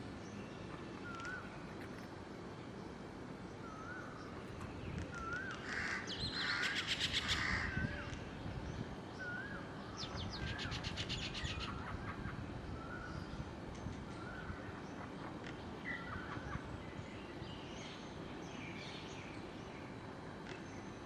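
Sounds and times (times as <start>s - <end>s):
harsh bird calls: 3.6s - 8.4s
rapid rattling bird chatter: 4.0s - 8.4s.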